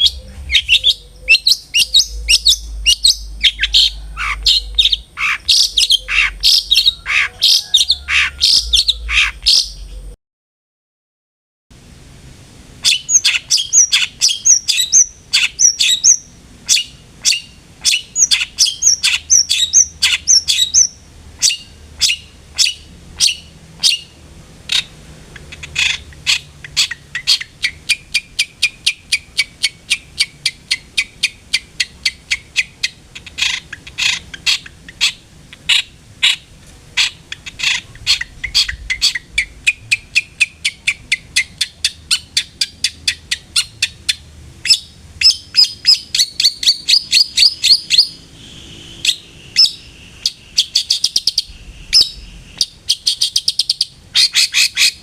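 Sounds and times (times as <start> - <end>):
shrike calling harsh notes: 0.0 - 10.0.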